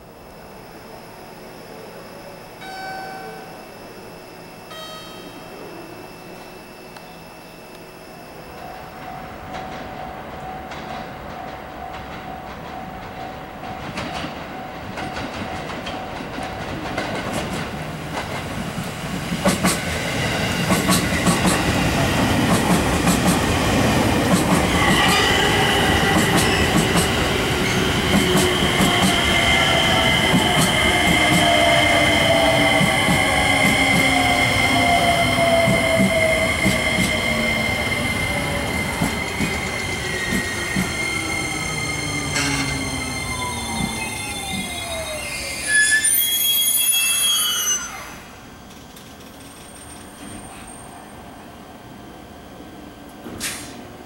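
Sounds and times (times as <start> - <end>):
train rumble: 8.5 - 45.3
high wheel squeal: 24.7 - 48.5.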